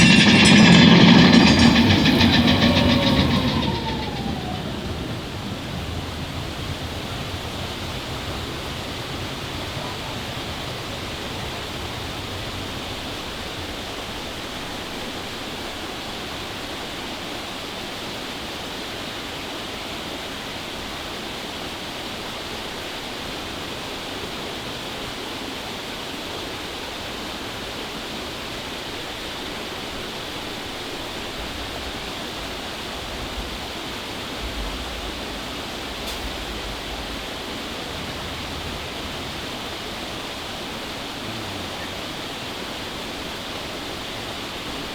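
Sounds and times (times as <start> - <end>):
low rumble: 0.0 - 14.2, 31.5 - 42.6
falling water rushing: 31.9 - 44.9.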